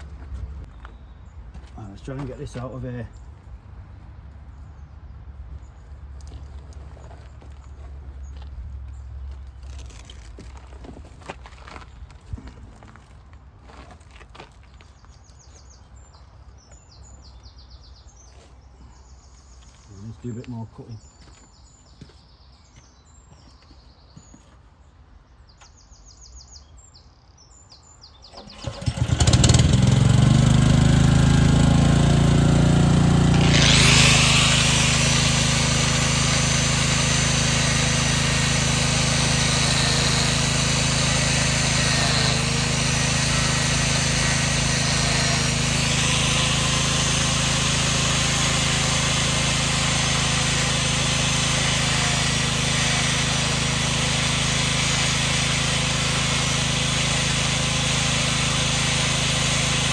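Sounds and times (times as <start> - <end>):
engine cranking: 28.3 - 59.9
engine running: 28.3 - 59.9.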